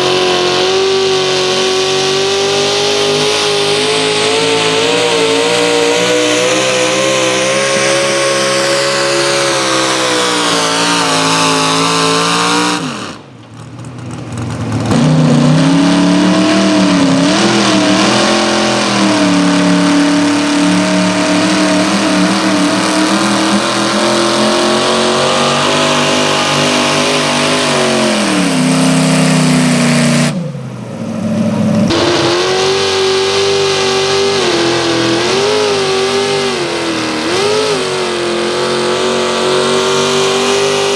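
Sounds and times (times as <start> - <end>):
engine running at high revs: 0.0 - 40.9.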